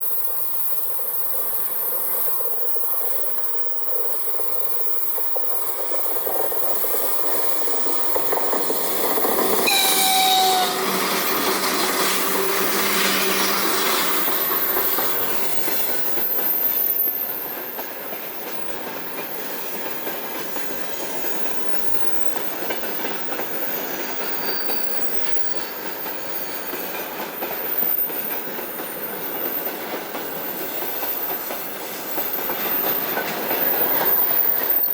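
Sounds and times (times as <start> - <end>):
freight train passing: 0.0 - 34.9
wheels clattering on rails: 4.3 - 34.9
train horn blast: 9.6 - 14.7.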